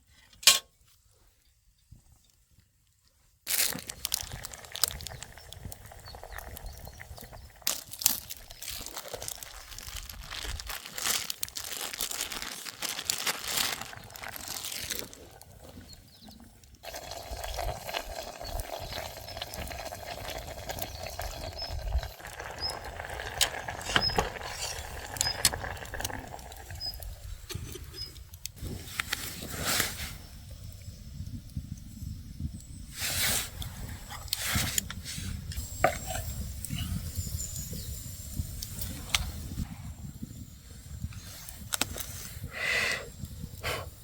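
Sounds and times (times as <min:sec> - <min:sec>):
rustling handling noises: 0:07.7 - 0:15.8.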